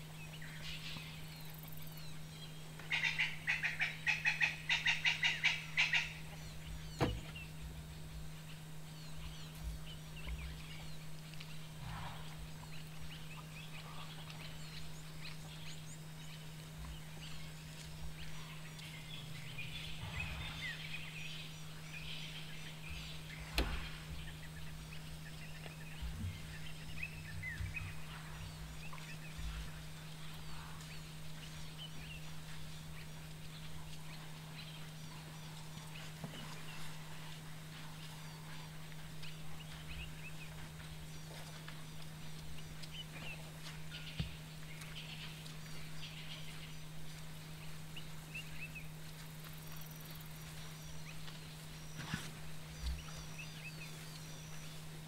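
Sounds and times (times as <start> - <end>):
steady low hum: 0.0 - 55.0
bird cackling call: 2.9 - 6.2.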